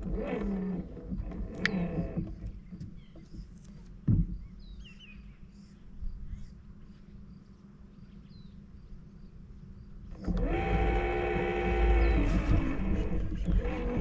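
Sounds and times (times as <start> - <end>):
low steady rumble: 0.0 - 14.0
faint bird chirps: 2.6 - 10.0.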